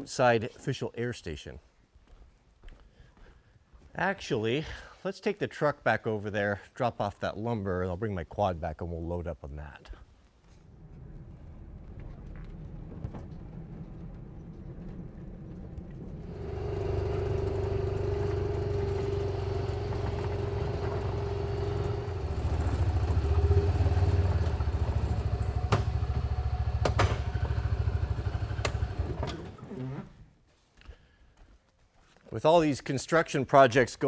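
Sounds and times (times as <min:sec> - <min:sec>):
vehicle engine rumbling: 0:10.6 - 0:29.1
engine whine: 0:10.7 - 0:29.4.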